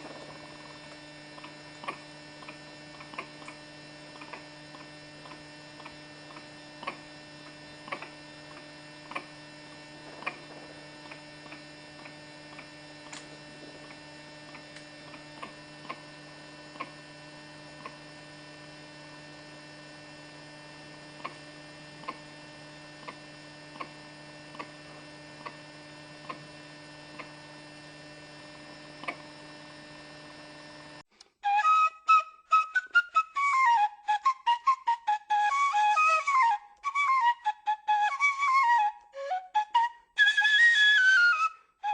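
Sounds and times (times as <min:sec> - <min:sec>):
electrical hum: 0:00.0 - 0:41.9
flute music: 0:31.4 - 0:41.9.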